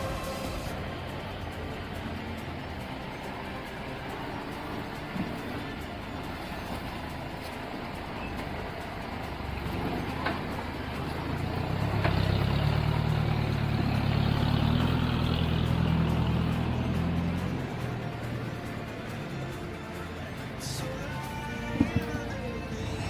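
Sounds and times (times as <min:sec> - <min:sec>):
vehicle engine revving: 0:00.0 - 0:23.0
short knocks: 0:21.7 - 0:22.4.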